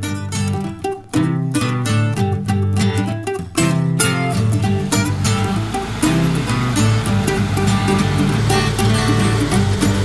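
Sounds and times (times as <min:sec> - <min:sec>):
plucked string instrument music: 0:00.0 - 0:10.0
steady bass line: 0:03.6 - 0:10.0.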